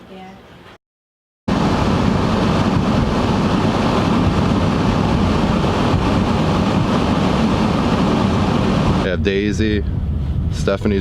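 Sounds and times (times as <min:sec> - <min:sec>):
car interior road rumble: 0:01.5 - 0:09.1.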